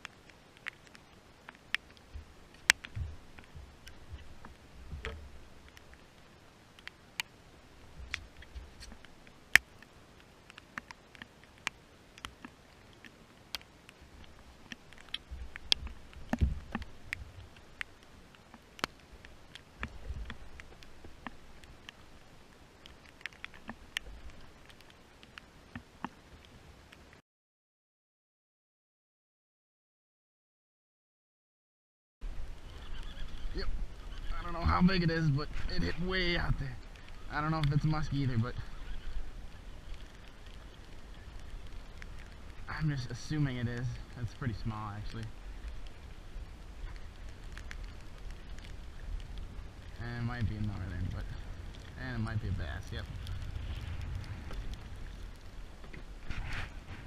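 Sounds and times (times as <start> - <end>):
raindrops hitting camera: 0.0 - 27.2, 32.2 - 57.0
low rumble: 47.9 - 57.0.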